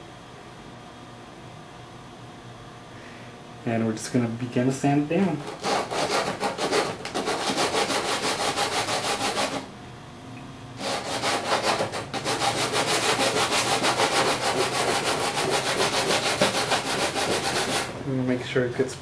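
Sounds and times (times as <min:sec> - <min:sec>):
sandpaper rubbing back and forth: 0:05.5 - 0:09.6, 0:10.8 - 0:17.9.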